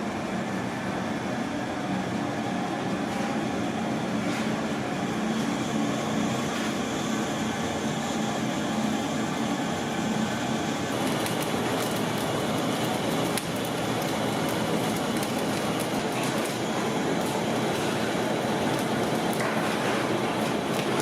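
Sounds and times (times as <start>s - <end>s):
rushing kitchen noise: 2.6s - 21.0s
faint crackles: 10.9s - 16.6s.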